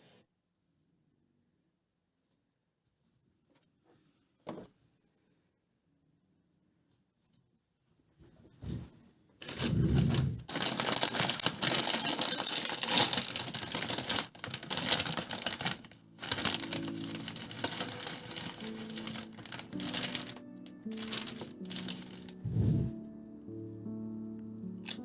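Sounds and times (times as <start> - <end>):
rapid clicking and crackling: 9.4 - 22.4
soft background music: 9.7 - 25.0.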